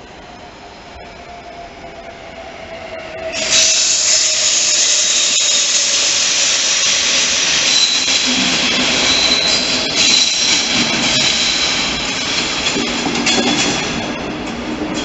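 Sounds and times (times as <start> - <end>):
train rumble and wheel rush: 0.0 - 15.0
high squeal: 2.7 - 12.6.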